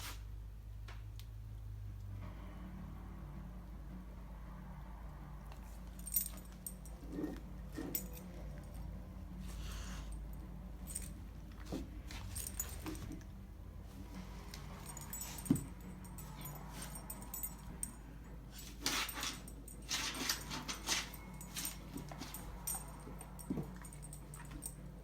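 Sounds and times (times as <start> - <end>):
dog collar tags jingling: 5.8 - 9.0, 9.6 - 13.3, 14.2 - 25.0.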